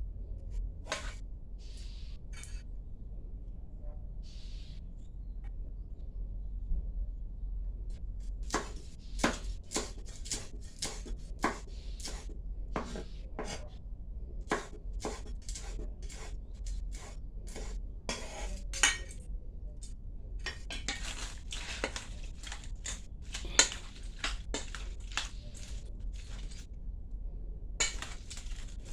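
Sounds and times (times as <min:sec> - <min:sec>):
utensils clinking against dishes: 0:17.5 - 0:19.2, 0:20.4 - 0:26.6, 0:27.8 - 0:28.9.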